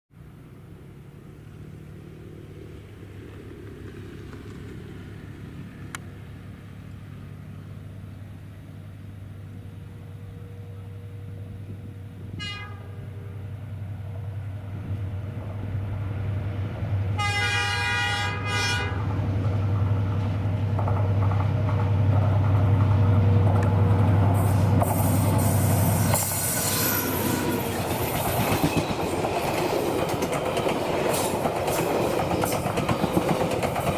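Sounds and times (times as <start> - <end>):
diesel train engine drone: 0.1 - 33.9
train horn: 12.2 - 13.5, 17.1 - 19.1, 24.5 - 27.8
train wheels clattering on rails: 19.0 - 33.9.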